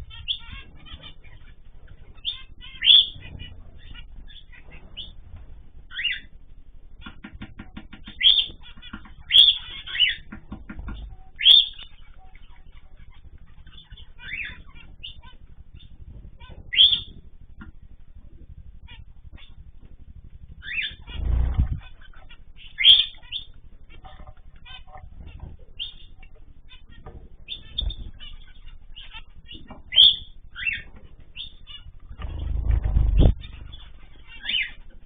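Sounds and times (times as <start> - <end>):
cage birds chirping: 0.0 - 35.0
wings flapping: 7.0 - 35.0.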